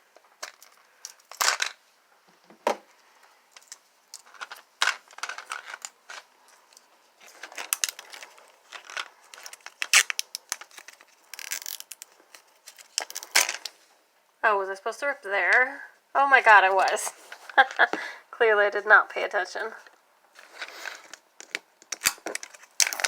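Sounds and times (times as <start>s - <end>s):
plastic packaging crinkling: 3.5s - 13.9s, 20.4s - 23.0s.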